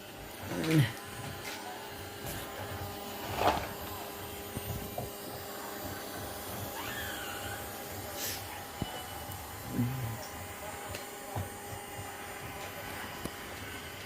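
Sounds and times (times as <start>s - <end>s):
robot vacuum cleaner humming: 0.0s - 14.0s.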